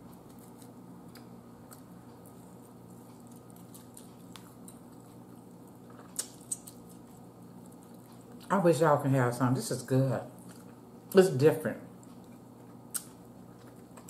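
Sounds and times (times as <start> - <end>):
chewing: 0.0 - 8.6, 10.4 - 10.8, 12.0 - 14.0
steady low hum: 0.0 - 14.0
fingers pulling apart food: 5.8 - 8.1, 12.7 - 14.0.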